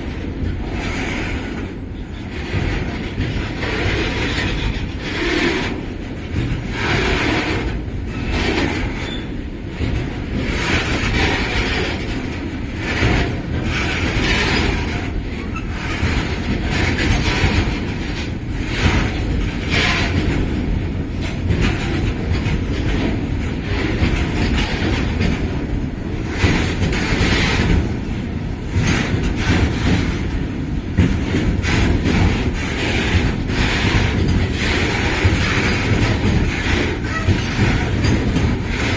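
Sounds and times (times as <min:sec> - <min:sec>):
freight train low rumble: 0:00.0 - 0:38.9
wheels clattering on rails: 0:00.0 - 0:38.9.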